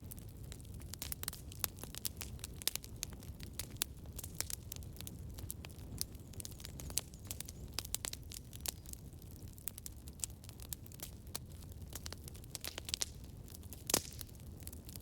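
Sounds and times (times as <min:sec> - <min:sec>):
burning wood popping: 0:00.0 - 0:15.0
campfire crackling: 0:00.0 - 0:15.0
low rumble of flames: 0:00.0 - 0:15.0.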